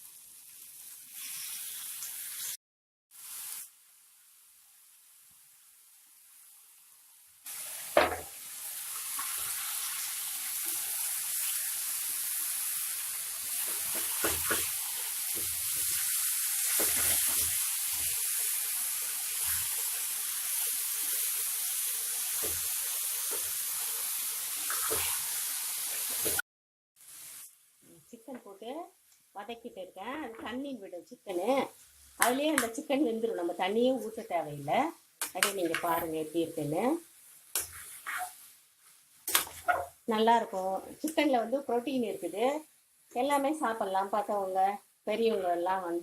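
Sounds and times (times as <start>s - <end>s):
chicken frying in hot oil: 0.0s - 26.4s
spoon knocking pan: 13.6s - 15.9s.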